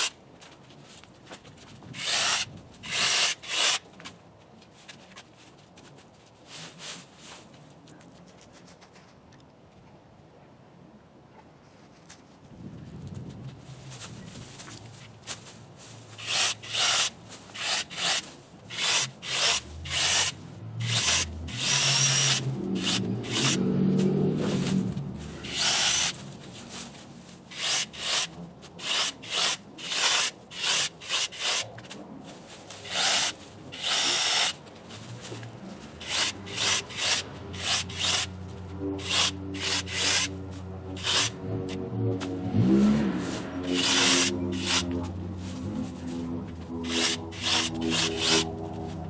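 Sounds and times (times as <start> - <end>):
electric chainsaw cutting branches: 2.0 - 3.8, 16.2 - 26.3, 27.5 - 31.7, 32.8 - 34.6, 36.0 - 41.9, 42.6 - 49.0.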